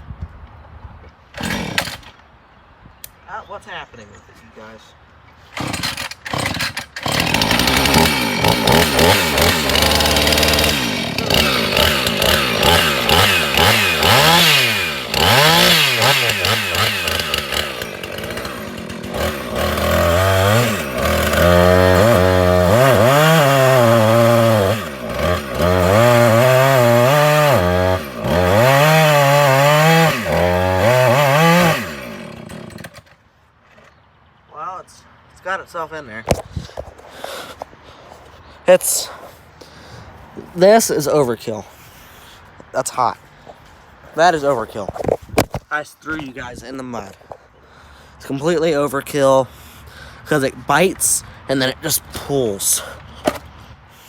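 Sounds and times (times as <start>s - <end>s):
chainsaw revving: 1.4s - 2.1s, 5.6s - 33.2s.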